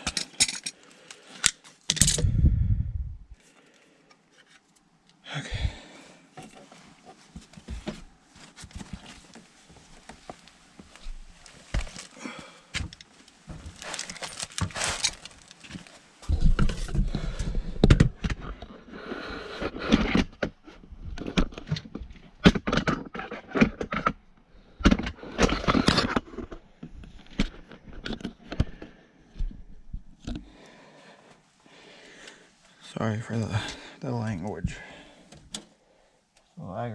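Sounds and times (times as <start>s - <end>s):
hand tools clinking on metal fittings: 0.0s - 0.8s.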